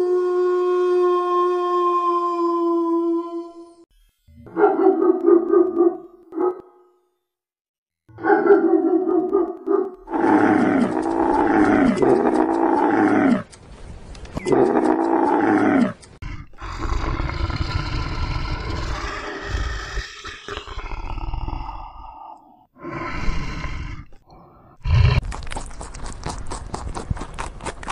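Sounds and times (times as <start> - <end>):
camels groaning: 10.1 - 13.5.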